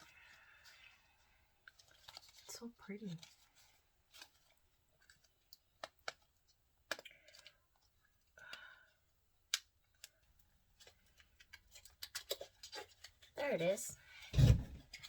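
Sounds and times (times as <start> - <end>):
plastic clicks and taps: 6.9 - 7.5.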